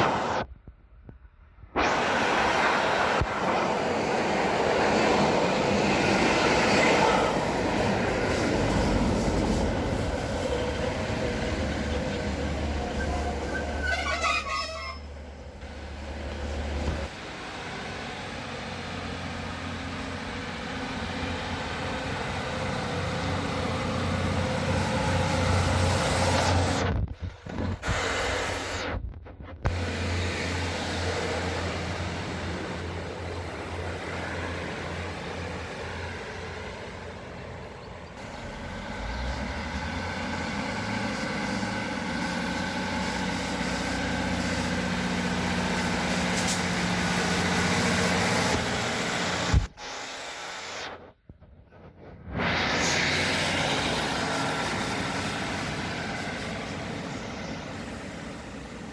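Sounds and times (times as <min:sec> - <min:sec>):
train engine drone: 0:00.0 - 0:51.2, 0:52.2 - 0:58.9.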